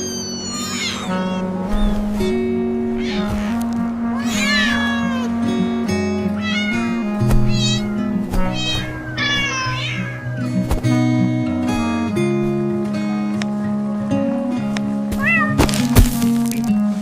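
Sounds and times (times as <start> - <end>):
cat meowing: 0.0 - 5.4, 6.3 - 10.6, 15.1 - 15.6
background music of held notes: 0.0 - 17.0.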